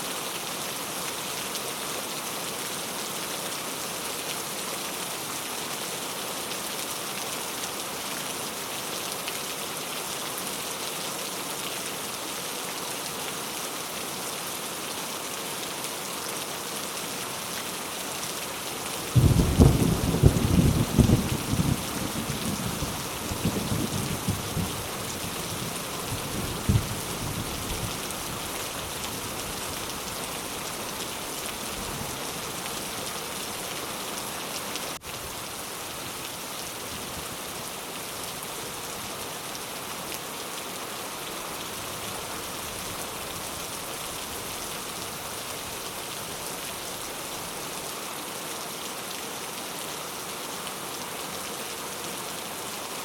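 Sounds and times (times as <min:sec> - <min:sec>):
steady rain falling: 0:00.0 - 0:53.0
low rumble of thunder: 0:19.2 - 0:24.9, 0:26.1 - 0:28.0.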